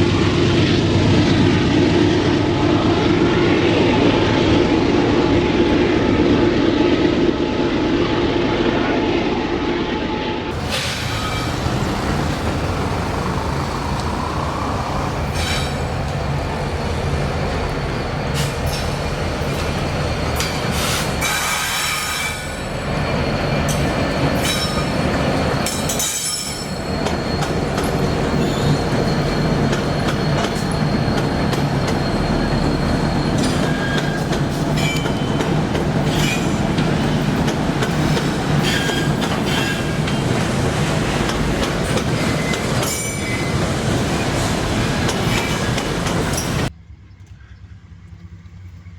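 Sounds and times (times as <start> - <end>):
train wheels rumbling on rails: 0.0 - 48.9
high wheel squeal: 10.6 - 37.1, 37.9 - 40.2, 41.0 - 46.7.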